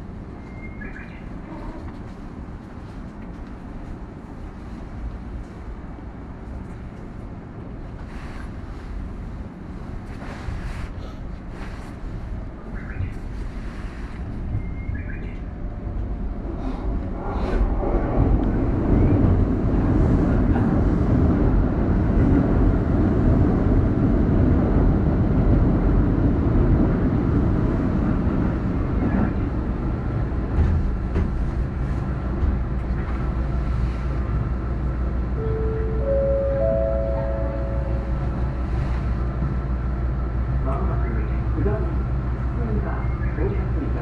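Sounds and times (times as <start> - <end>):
passing train rumbling: 0.0 - 44.0.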